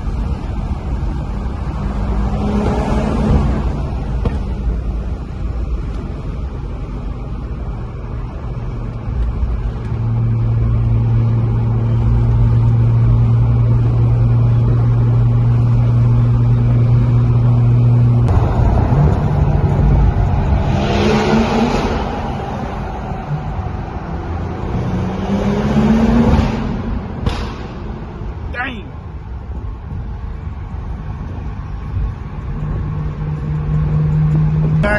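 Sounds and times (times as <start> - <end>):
car engine revving: 0.1 - 7.1, 8.6 - 28.5.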